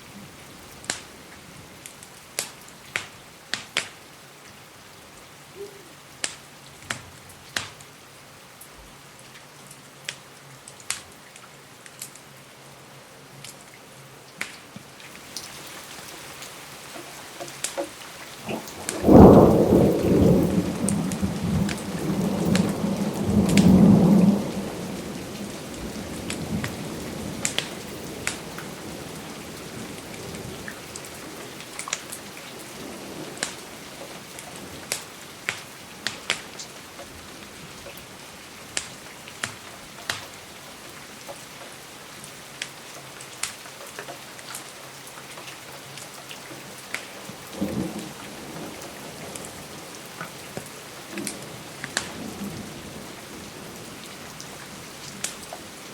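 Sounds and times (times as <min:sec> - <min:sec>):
steady rain: 0:00.0 - 0:55.9
fireplace crackles: 0:14.4 - 0:22.8, 0:33.3 - 0:41.2
thunder rumbling: 0:18.3 - 0:35.0, 0:51.1 - 0:55.3.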